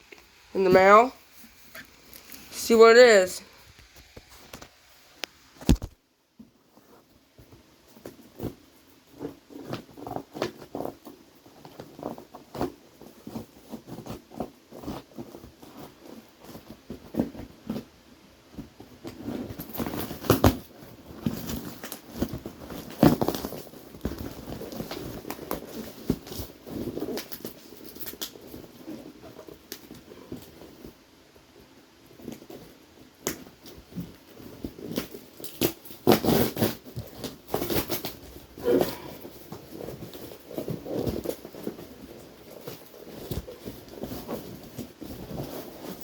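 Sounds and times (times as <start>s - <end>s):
package rustling: 1.4s - 2.5s.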